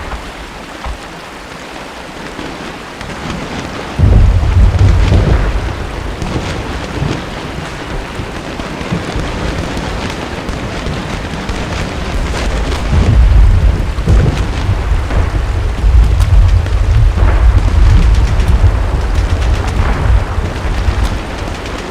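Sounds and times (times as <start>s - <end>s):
steady rain: 0.0s - 21.9s
deep rumbling boom: 4.0s - 7.2s, 12.1s - 21.6s.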